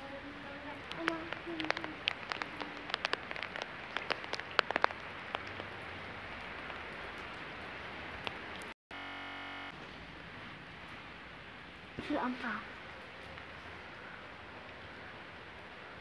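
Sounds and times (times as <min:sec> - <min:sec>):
raindrops tapping: 0:00.0 - 0:08.8
rain hiss: 0:00.0 - 0:16.0.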